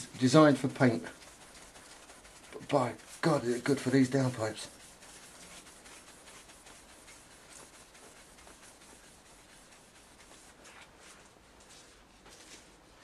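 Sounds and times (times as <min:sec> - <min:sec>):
cloth rubbing on metal pipes: 0:00.0 - 0:13.0.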